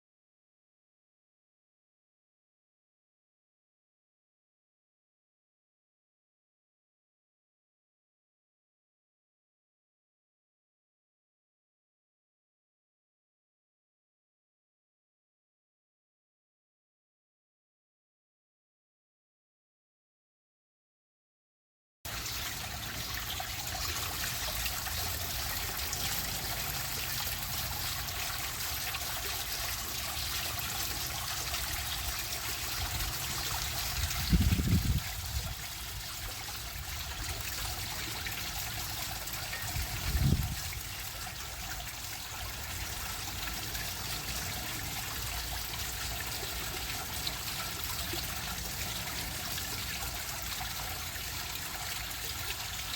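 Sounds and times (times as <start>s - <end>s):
water running over waterfall: 22.1s - 52.9s.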